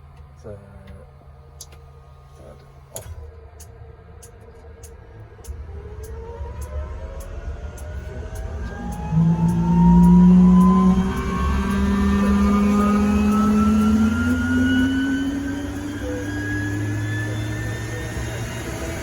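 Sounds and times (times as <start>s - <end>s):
helicopter turbine spooling up: 4.8s - 19.0s.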